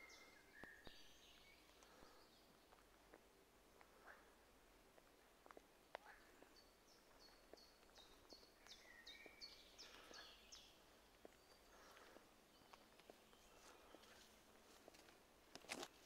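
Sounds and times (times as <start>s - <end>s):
small songbird singing: 0.0s - 2.7s, 6.0s - 14.2s
footsteps in undergrowth: 5.0s - 16.0s.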